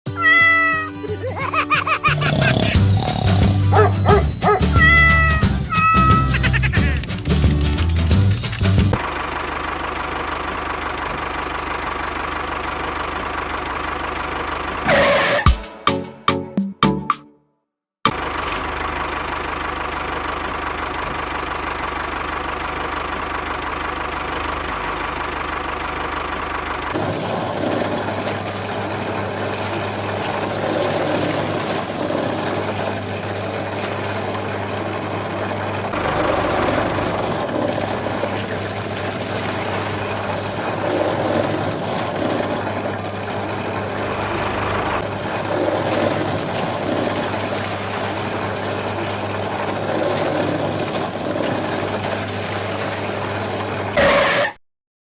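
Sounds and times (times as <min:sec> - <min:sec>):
engine humming steadily: 0:00.2 - 0:15.4, 0:18.1 - 0:54.3.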